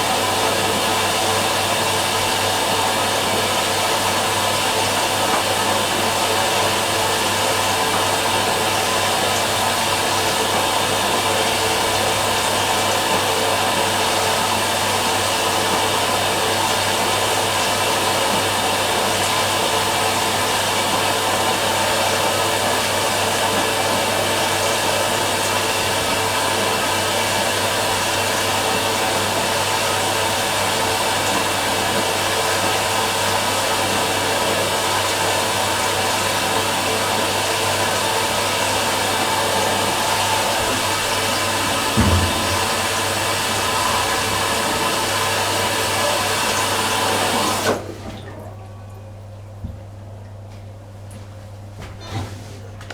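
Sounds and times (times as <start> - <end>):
blower rushing noise with hum: 40.3 - 47.6.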